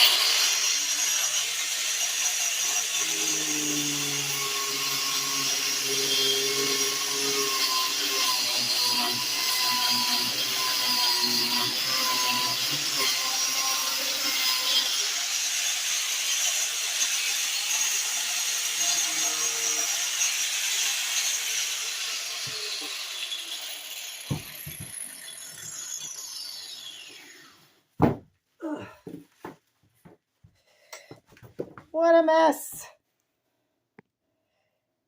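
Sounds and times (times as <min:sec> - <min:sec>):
grinder cutting ceiling tile: 0:00.0 - 0:27.9.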